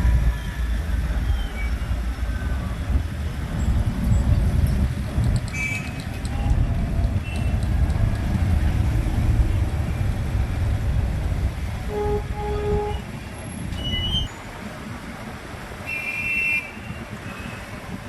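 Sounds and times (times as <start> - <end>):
road noise rumble: 0.0 - 18.0
vehicle horn honking: 11.9 - 13.1.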